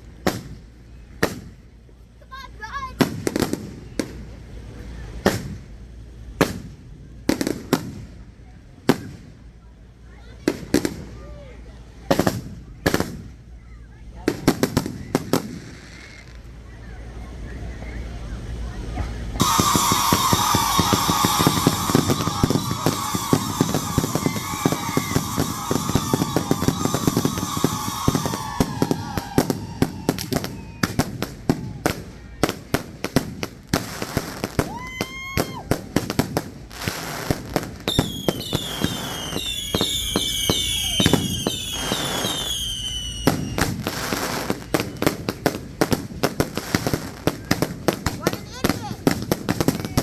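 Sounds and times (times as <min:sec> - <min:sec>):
fireworks crackling reports: 0:00.0 - 0:50.0
short falling firework whistles: 0:12.1 - 0:17.0, 0:19.0 - 0:47.7
long falling firework whistle: 0:19.4 - 0:32.2, 0:33.9 - 0:45.6.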